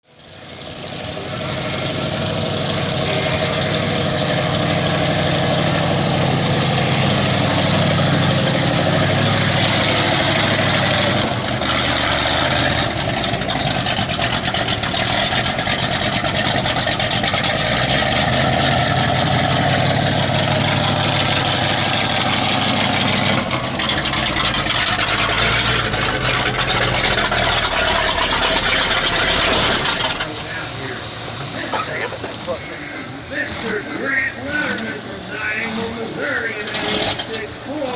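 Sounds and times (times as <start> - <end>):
truck engine revving under load: 0.1 - 37.9.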